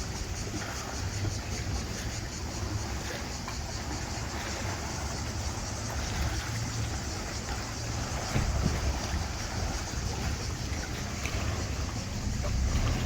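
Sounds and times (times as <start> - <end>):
boat engine rumbling: 0.0 - 13.0
water rushing: 0.0 - 13.0.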